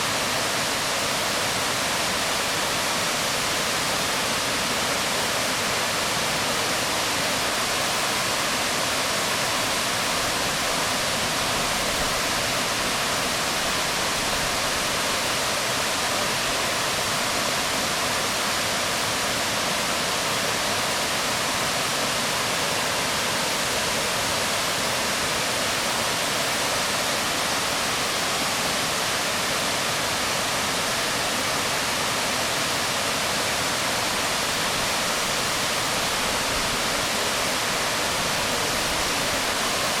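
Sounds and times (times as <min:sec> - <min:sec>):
waterfall onto rocks: 0:00.0 - 0:40.0.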